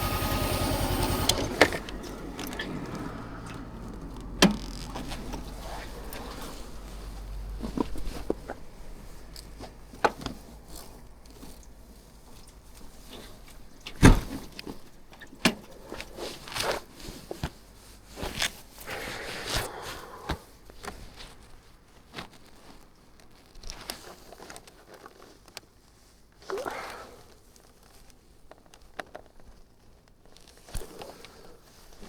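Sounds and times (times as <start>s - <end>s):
handling clicks and knocks: 0.0s - 6.8s
rustling: 0.0s - 32.0s.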